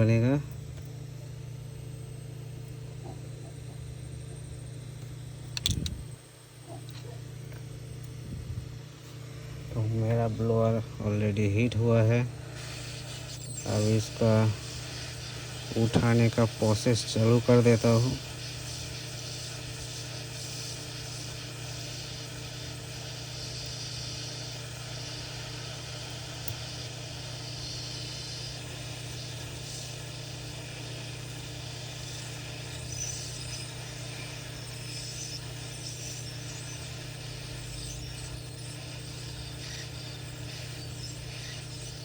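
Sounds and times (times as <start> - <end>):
low hum: 0.0 - 16.2
hot air blowing: 8.1 - 42.0.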